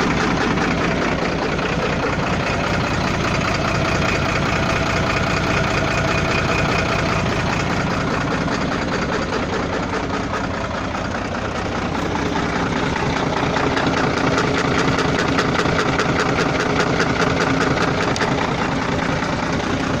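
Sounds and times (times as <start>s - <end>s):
diesel truck engine running: 0.0s - 20.0s
rapid ticking engine knock: 0.0s - 20.0s.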